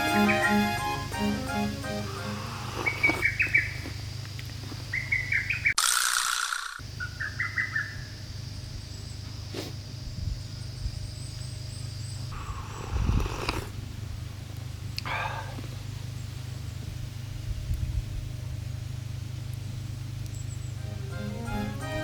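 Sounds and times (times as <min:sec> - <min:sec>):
steady low hum: 0:00.0 - 0:05.8, 0:06.8 - 0:22.0
small bird chirping: 0:02.5 - 0:13.7.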